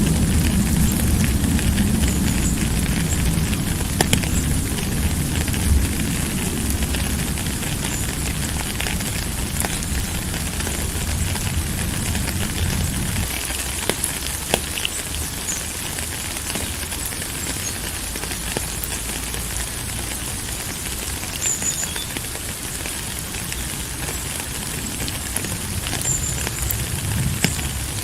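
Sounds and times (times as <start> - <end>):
low rumble: 0.0 - 13.3
steady rain falling: 0.0 - 28.0.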